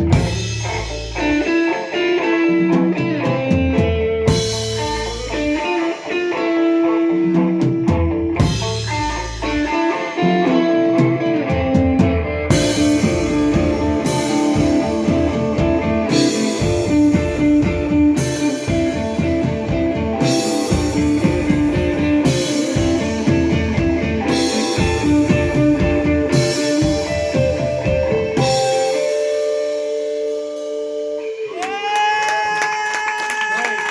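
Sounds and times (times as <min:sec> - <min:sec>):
drums striking hard accents: 0:00.0 - 0:31.9
rock band playing: 0:00.0 - 0:33.2.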